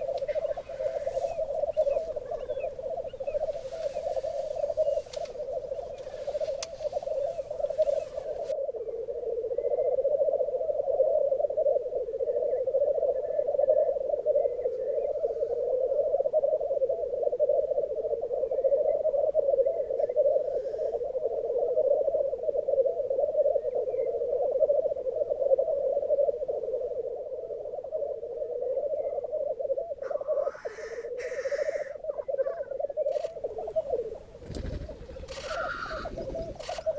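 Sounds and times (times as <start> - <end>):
faint high bird calls: 0.0 - 8.6, 30.0 - 36.9
grouse bubbling cooing chorus: 0.0 - 36.9.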